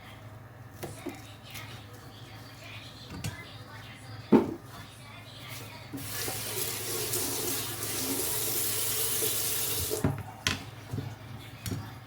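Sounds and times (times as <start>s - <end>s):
tap running into sink: 9.2s - 10.2s.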